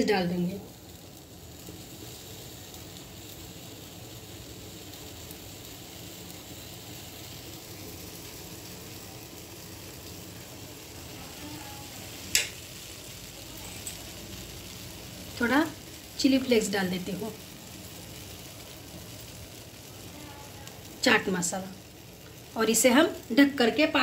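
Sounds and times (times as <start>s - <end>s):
sandwich sizzling in butter: 0.0s - 24.0s.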